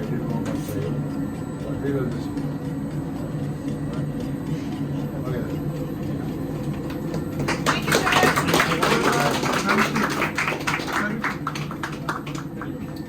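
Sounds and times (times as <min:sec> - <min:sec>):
people clapping: 0:06.8 - 0:13.0.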